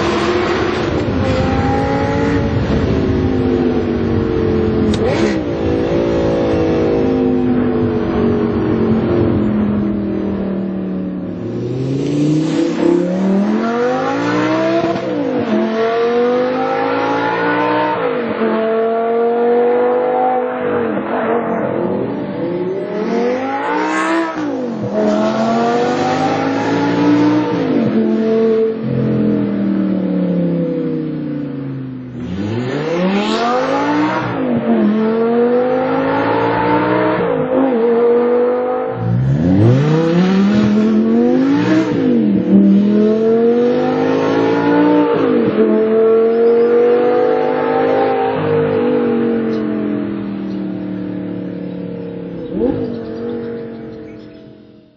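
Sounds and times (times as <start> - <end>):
car engine revving and accelerating: 0.0 - 54.9.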